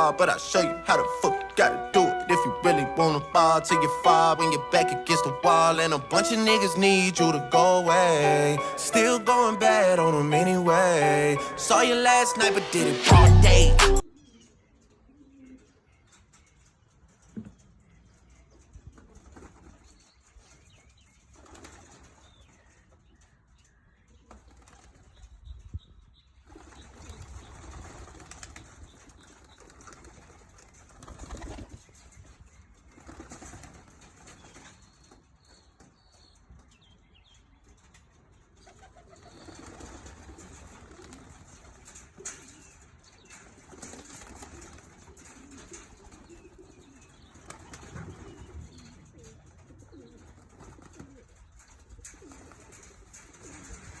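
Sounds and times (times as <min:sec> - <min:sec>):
pigeons flapping wings: 0:19.0 - 0:20.0, 0:21.3 - 0:22.2, 0:24.3 - 0:25.2, 0:26.5 - 0:32.0, 0:32.8 - 0:34.9, 0:38.6 - 0:42.5, 0:43.4 - 0:54.0.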